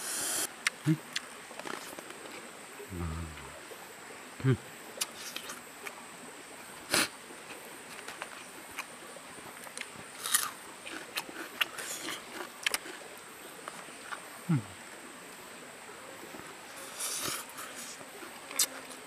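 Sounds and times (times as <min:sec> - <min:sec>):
low throat hum: 0:02.9 - 0:03.7
wet mouth clicks: 0:05.0 - 0:05.6
man chewing food: 0:09.6 - 0:14.2.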